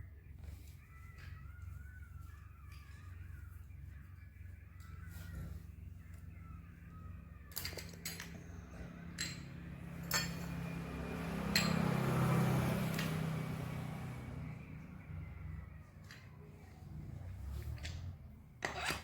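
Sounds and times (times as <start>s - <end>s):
metal tools clinking: 7.5s - 8.5s, 9.1s - 10.7s, 11.4s - 12.0s.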